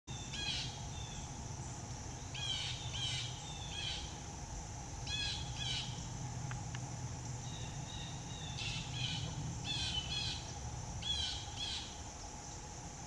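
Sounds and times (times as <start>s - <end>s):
high-pitched insect drone: 0.1s - 13.0s
bird harsh calls: 5.0s - 6.1s, 7.4s - 12.0s.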